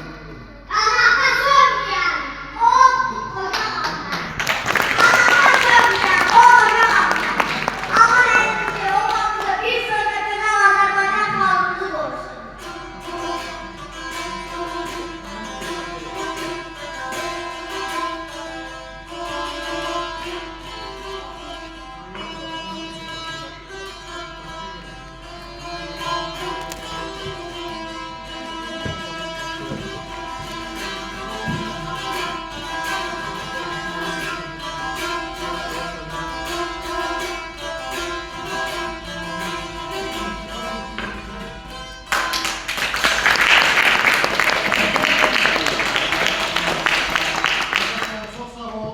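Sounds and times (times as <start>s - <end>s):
plucked lute with drone note: 7.9s - 42.7s.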